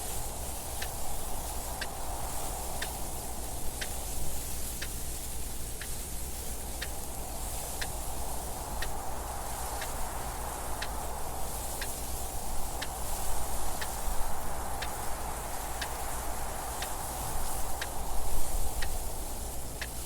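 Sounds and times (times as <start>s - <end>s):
wind noise: 0.0s - 20.0s
clock ticking: 18.8s - 19.0s.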